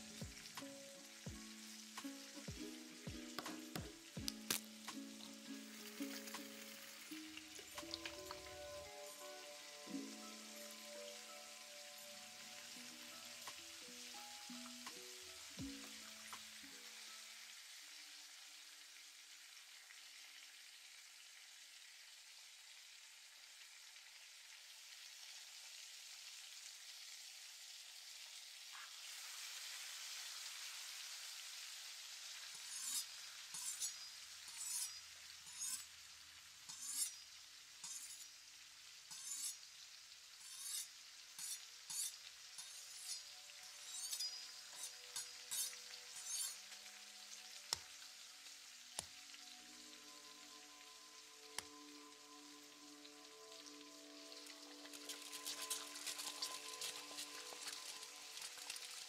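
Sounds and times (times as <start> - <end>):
food sizzling in a pan: 0.0 - 59.0
utensil stirring food: 40.4 - 48.0, 54.2 - 59.0.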